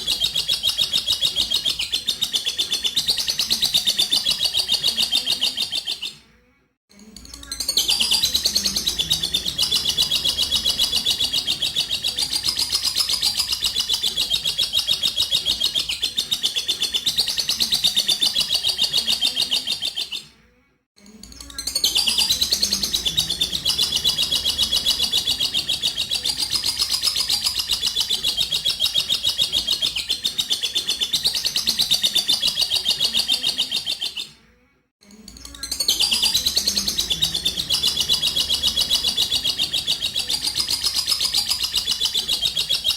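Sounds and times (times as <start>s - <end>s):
lovebird chattering trill: 35.6s - 42.9s.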